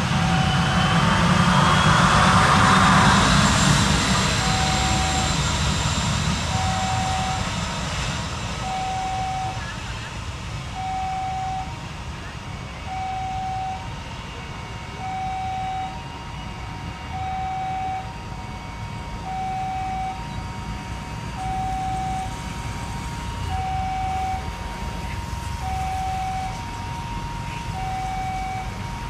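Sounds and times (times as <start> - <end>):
low rumble: 0.0 - 13.6
two-tone hi-lo siren: 0.0 - 29.0.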